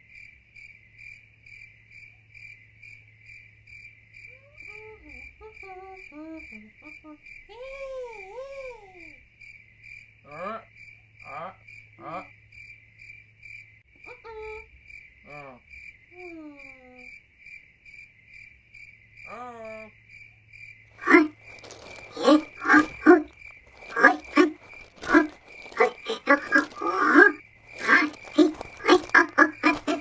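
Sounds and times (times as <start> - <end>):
cricket chirping: 0.0 - 30.0
loud abrupt croaks: 21.0 - 30.0.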